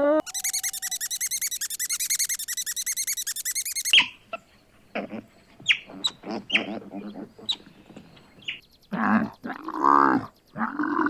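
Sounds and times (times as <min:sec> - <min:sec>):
high-pitched chirping trill: 0:00.2 - 0:04.1
short animal calls: 0:00.2 - 0:04.2.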